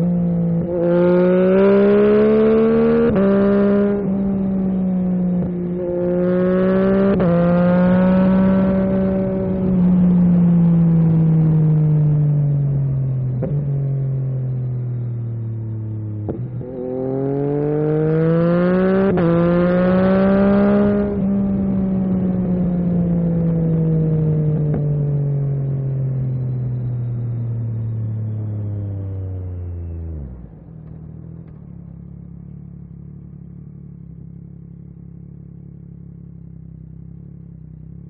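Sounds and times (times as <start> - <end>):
motorcycle engine revving: 0.0 - 38.0
motorcycle engine idling: 30.5 - 38.0.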